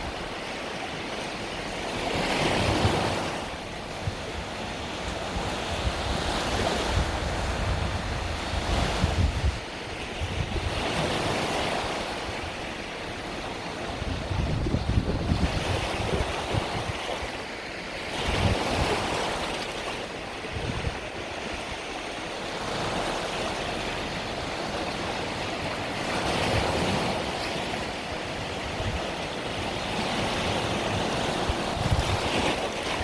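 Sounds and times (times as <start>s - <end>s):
sea waves breaking on shore: 0.0s - 33.0s
wind buffeting microphone: 0.0s - 33.0s.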